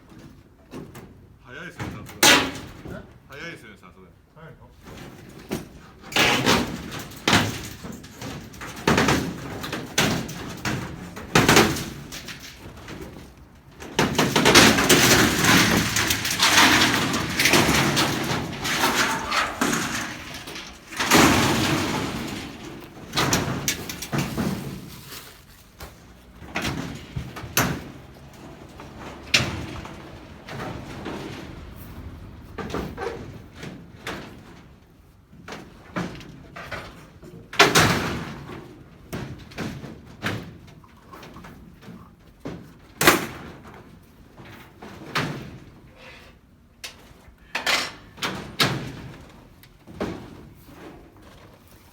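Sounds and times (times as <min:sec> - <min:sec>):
metal sheets banging: 0:02.1 - 0:02.9, 0:04.9 - 0:35.0
sheet metal scraping: 0:04.9 - 0:34.8.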